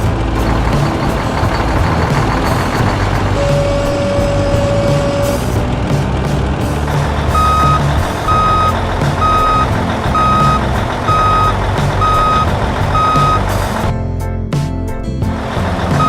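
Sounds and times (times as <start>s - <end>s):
heavy vehicle engine running: 0.0s - 14.3s, 15.1s - 16.0s
reversing alarm beeping: 3.3s - 5.4s, 7.3s - 13.6s.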